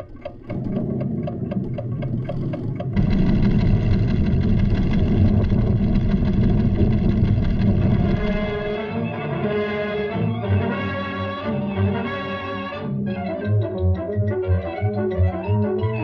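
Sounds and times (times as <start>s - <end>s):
instrument ticking: 0.0s - 3.0s
deep rumble: 0.5s - 9.0s.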